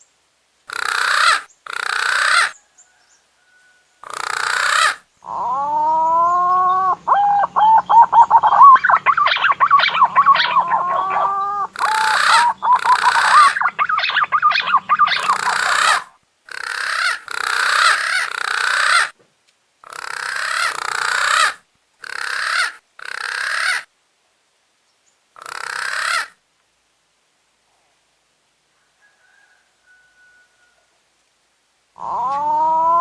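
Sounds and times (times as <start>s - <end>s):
harsh grating pigeon calls: 0.7s - 2.6s, 4.0s - 19.2s, 19.8s - 23.9s, 25.4s - 26.4s, 32.0s - 33.0s.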